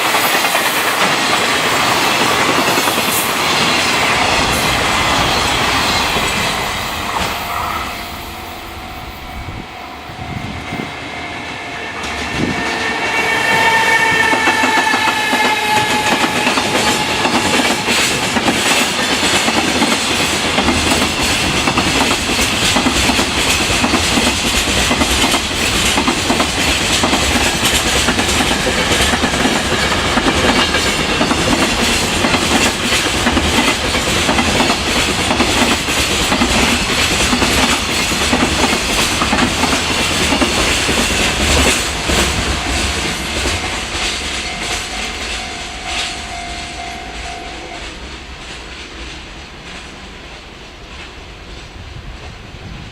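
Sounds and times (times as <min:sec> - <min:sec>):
train wagons clickety-clack: 0:00.0 - 0:11.0, 0:12.0 - 0:52.9
locomotive motor whine: 0:06.1 - 0:12.7.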